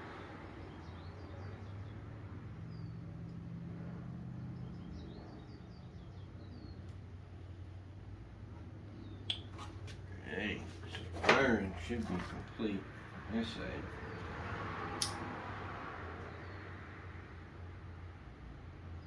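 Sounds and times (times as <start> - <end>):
faint birds chirping: 0.0 - 19.0
sharp click: 15.0 - 15.3.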